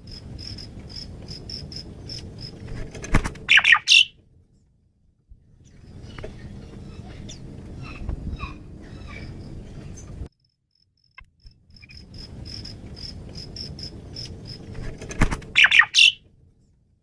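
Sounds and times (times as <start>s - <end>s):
harsh bird calls: 3.3s - 4.2s, 5.6s - 10.3s, 15.4s - 16.2s
bird singing high notes: 3.5s - 4.1s, 15.6s - 16.2s.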